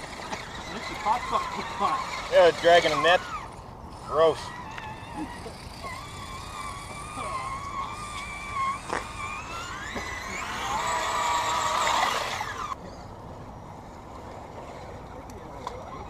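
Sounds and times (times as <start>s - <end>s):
electric motor and gears whining: 0.0s - 12.8s.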